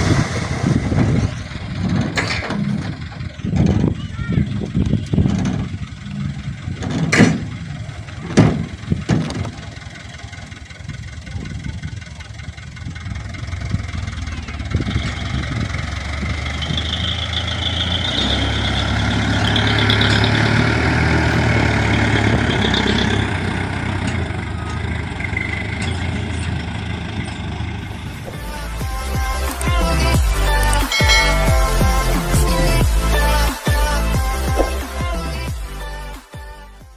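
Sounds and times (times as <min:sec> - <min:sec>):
diesel truck engine running: 0:00.0 - 0:36.9
sharp knocks: 0:06.8 - 0:07.6, 0:08.3 - 0:09.6.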